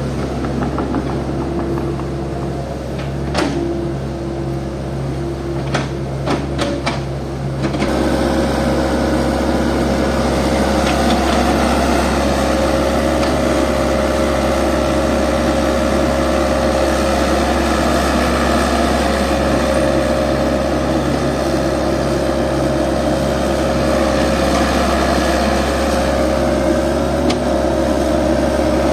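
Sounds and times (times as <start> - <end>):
motor humming and whining: 7.7 - 28.9.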